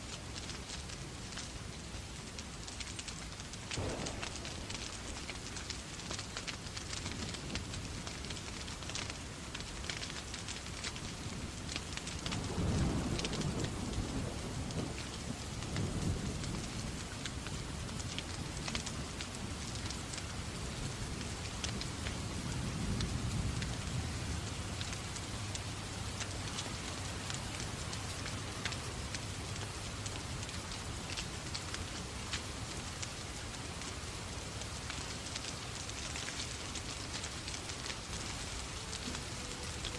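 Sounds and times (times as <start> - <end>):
steady rain: 0.0 - 39.9
low thunder rumbles: 3.7 - 8.7, 12.3 - 19.2.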